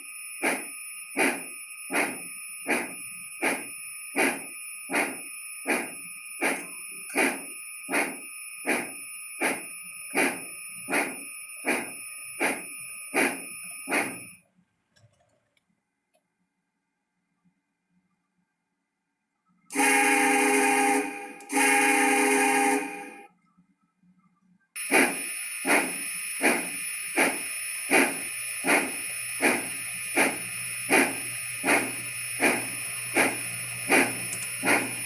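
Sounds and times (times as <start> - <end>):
railroad bell ringing: 19.7 - 23.3.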